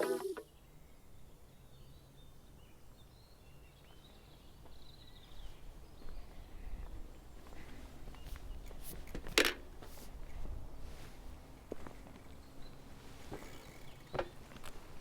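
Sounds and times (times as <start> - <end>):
distant bird chirps: 12.1 - 14.8.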